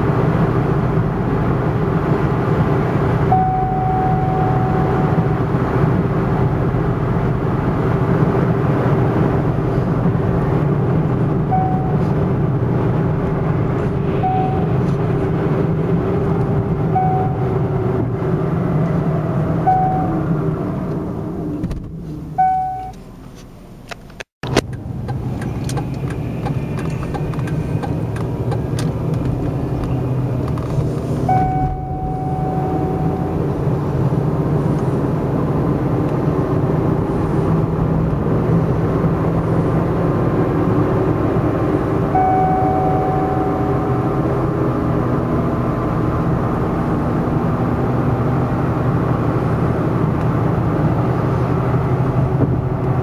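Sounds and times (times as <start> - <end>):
car engine running: 0.0 - 53.0
short steady tone: 3.3 - 5.2, 11.4 - 12.2, 14.2 - 14.9, 16.9 - 17.7, 19.6 - 20.2, 22.4 - 23.0, 31.3 - 33.4, 42.1 - 44.3.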